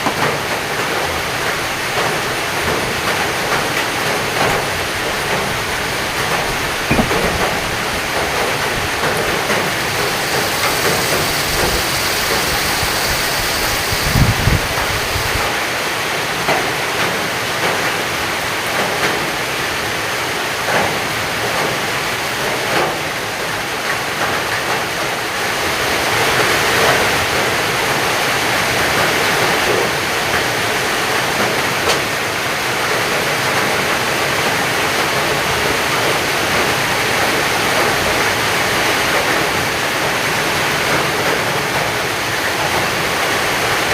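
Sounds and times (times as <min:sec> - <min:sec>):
heavy rain pouring: 0:00.0 - 0:43.9
low thump: 0:06.9 - 0:07.6
drips tapping: 0:06.9 - 0:07.8.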